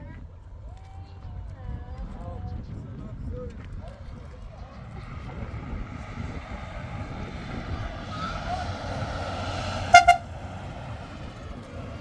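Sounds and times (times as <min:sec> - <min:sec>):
traffic rumble: 0:00.5 - 0:12.0
vehicle horn toots: 0:08.2 - 0:10.7.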